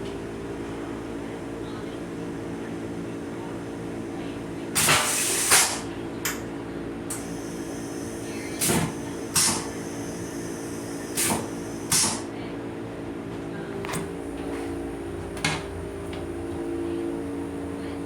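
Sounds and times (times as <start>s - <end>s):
train coach mechanical hum: 0.0s - 18.0s.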